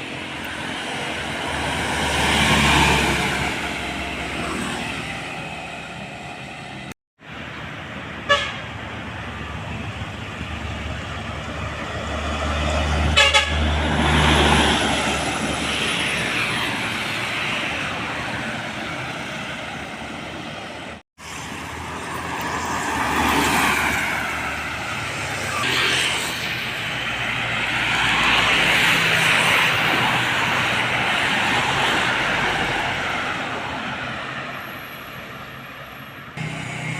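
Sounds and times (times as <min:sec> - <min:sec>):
heavy vehicles passing: 0:00.0 - 0:36.9
pulsing horn blast: 0:08.2 - 0:08.7, 0:13.1 - 0:13.8.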